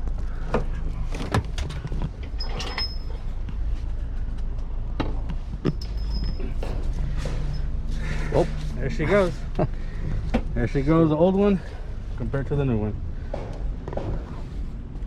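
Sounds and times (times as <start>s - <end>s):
steady low rumble: 0.0s - 15.0s
metal knocks and clanks: 4.9s - 7.9s.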